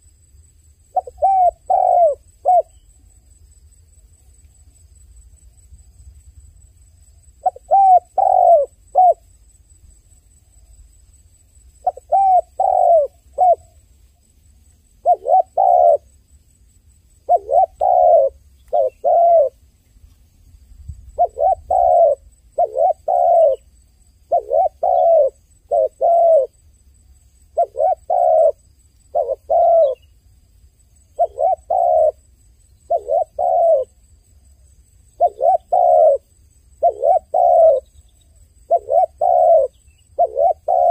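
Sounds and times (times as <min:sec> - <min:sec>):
dove cooing: 0:00.9 - 0:02.9, 0:07.4 - 0:09.2, 0:11.8 - 0:13.8, 0:15.0 - 0:16.1, 0:17.2 - 0:19.6, 0:21.1 - 0:23.7, 0:24.3 - 0:26.6, 0:27.5 - 0:30.0, 0:31.2 - 0:32.3, 0:32.9 - 0:34.0, 0:35.2 - 0:38.0, 0:38.6 - 0:40.9.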